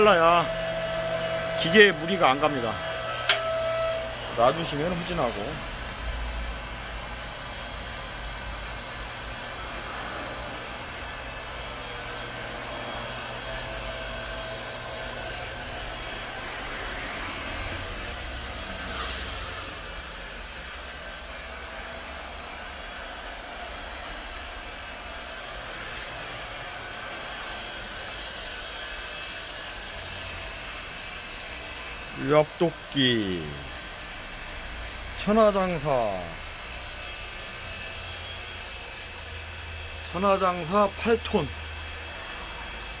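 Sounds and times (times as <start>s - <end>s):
log splitter motor whirring: 0.0s - 43.0s
short click: 3.2s - 3.5s.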